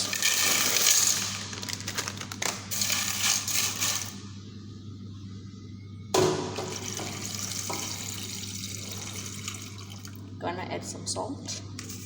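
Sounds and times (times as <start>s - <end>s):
kitchen rustling and clatter: 0.0s - 4.2s
steady low hum: 0.0s - 12.0s
running tap water: 6.8s - 10.2s.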